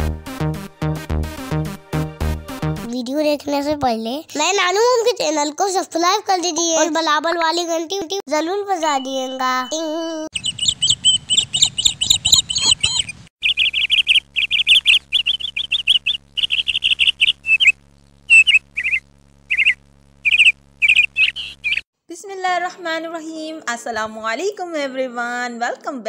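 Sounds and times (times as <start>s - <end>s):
birds chirping: 8.8s - 21.8s.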